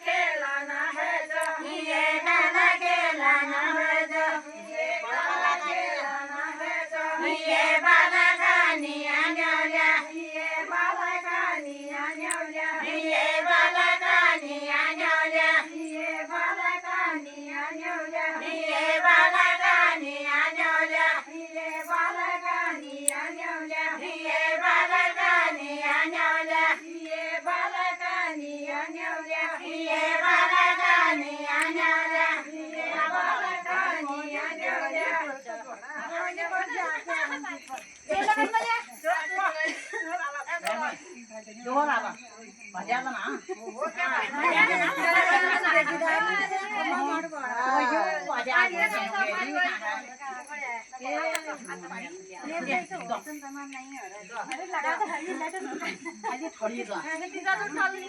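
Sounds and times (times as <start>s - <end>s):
high-pitched voices singing: 0.0s - 6.6s, 7.2s - 35.2s.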